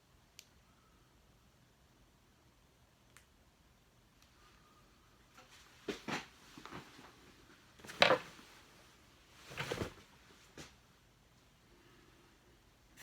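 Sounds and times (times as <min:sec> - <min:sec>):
objects knocking and scraping: 0:07.8 - 0:08.4, 0:09.5 - 0:10.0.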